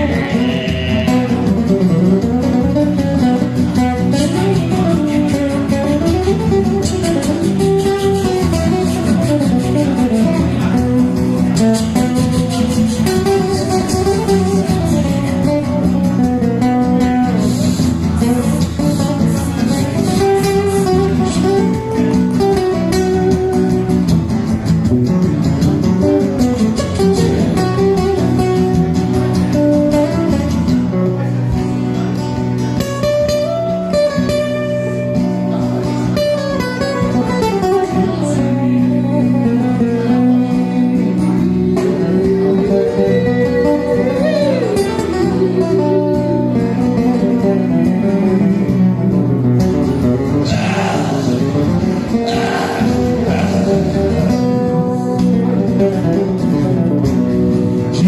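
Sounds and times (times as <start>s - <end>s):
plucked guitar tune: 0.0s - 58.0s
sustained low notes: 50.5s - 54.5s.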